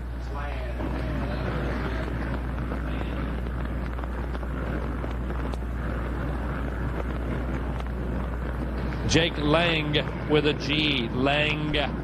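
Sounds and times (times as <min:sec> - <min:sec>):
constant low hum: 0:00.0 - 0:12.0
distant motocross bikes: 0:00.0 - 0:12.0.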